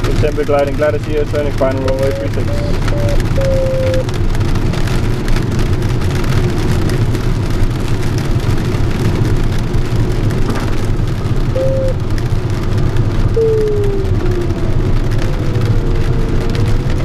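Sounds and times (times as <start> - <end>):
rain and rushing airflow: 0.0 - 17.0
short steady tone: 2.5 - 4.0, 11.6 - 12.0.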